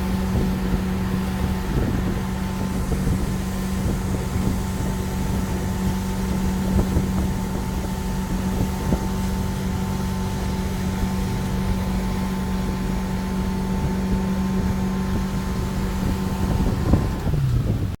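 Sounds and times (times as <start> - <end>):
motorboat engine running: 0.0 - 18.0
wind buffeting microphone: 0.0 - 18.0.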